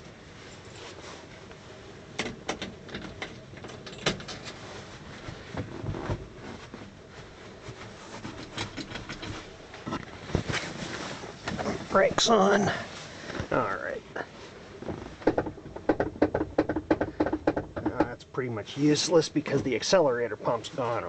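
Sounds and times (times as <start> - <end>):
steady background noise: 0.0 - 21.0
clicks and knocks in truck cab: 14.9 - 18.2.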